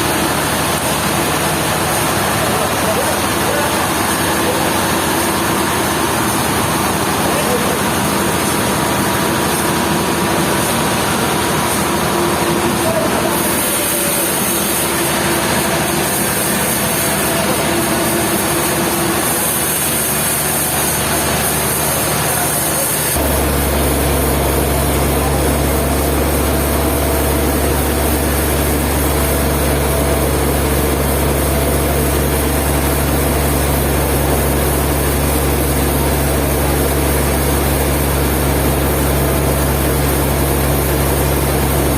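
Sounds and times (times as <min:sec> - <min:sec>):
heavy machinery engine running: 0:00.0 - 0:41.9
deep steady hum: 0:23.2 - 0:41.9.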